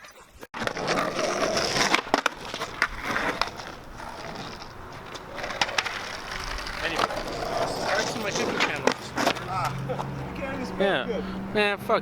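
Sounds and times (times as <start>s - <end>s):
skateboard clacks: 0.6s - 9.8s
skateboard wheels rolling: 0.6s - 10.6s.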